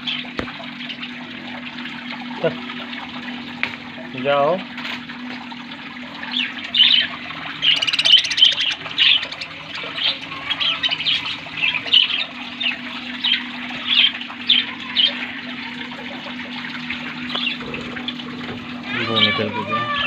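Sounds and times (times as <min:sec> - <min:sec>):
steady low hum: 0:05.1 - 0:19.3
budgerigars chirping: 0:06.3 - 0:15.1.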